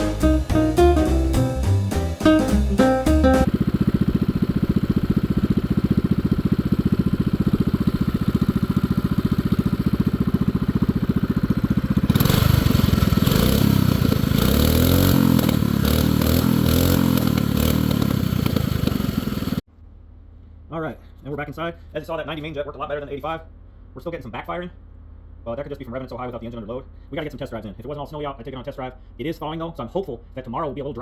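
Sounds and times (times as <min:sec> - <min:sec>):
minibike engine idling and revving: 0:03.4 - 0:19.6.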